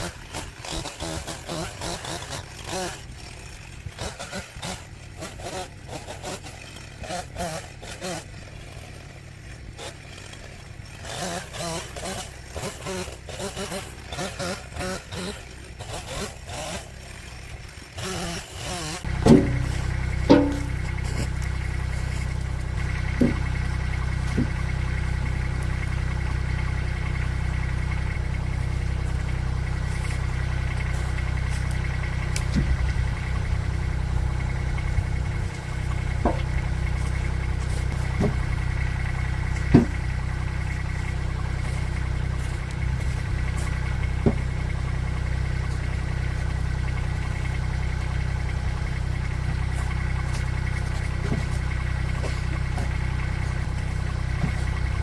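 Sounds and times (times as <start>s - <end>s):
engine idling: 0.0s - 55.0s
sharp knocks: 19.1s - 22.2s, 22.8s - 23.7s, 35.6s - 37.0s, 39.6s - 40.2s.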